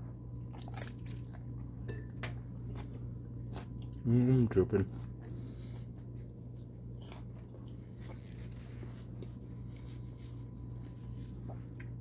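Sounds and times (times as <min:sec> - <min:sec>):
steady low hum: 0:00.0 - 0:12.0
person chewing: 0:00.4 - 0:04.1, 0:05.0 - 0:12.0.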